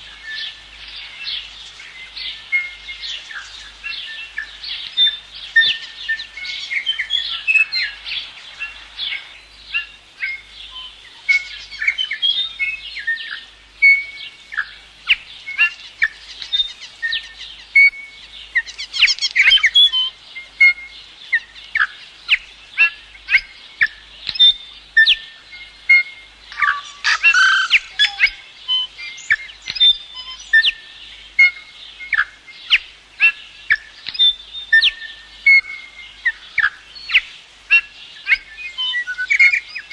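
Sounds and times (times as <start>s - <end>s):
songbirds chirping and whistling: 0.0s - 39.9s.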